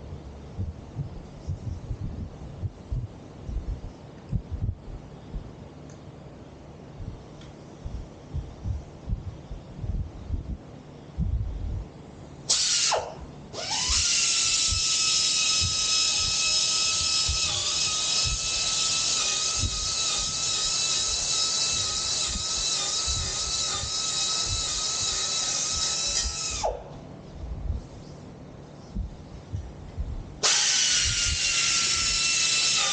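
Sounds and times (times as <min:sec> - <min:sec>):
electric power tool whining: 0:12.5 - 0:26.9, 0:30.4 - 0:32.9.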